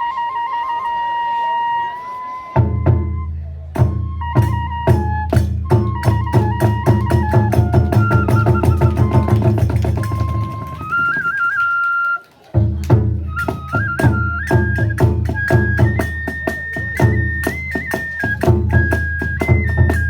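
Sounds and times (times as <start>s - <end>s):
bamboo flute melody: 0.0s - 20.0s
drum strikes: 12.6s - 20.0s.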